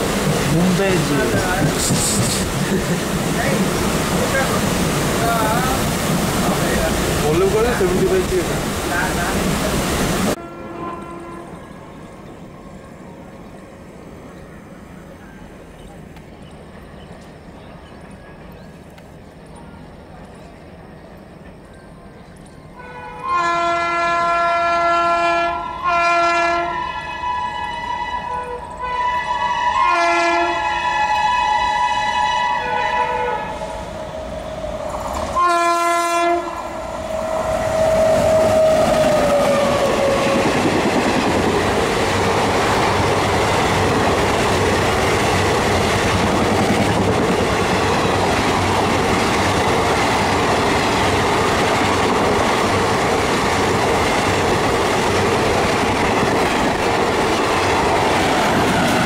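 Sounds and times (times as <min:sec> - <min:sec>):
wheels clacking on rails: 0:00.0 - 0:09.6, 0:11.0 - 0:23.5, 0:36.6 - 0:59.0
train passing at speed: 0:00.0 - 0:59.0
locomotive horn blasts: 0:10.4 - 0:11.7, 0:22.8 - 0:33.8, 0:35.4 - 0:36.8.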